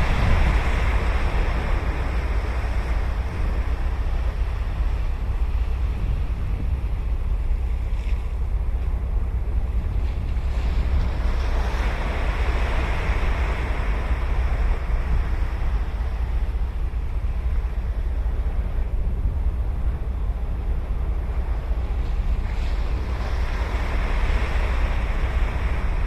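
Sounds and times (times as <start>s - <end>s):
wave breaking: 0.0s - 20.5s
low rumble: 0.0s - 26.0s
sea washing: 0.0s - 26.0s.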